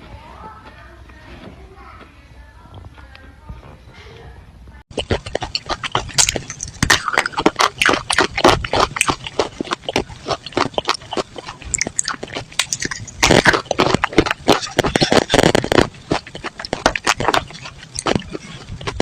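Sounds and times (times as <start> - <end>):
person chewing crunchy clay: 4.9 - 19.0.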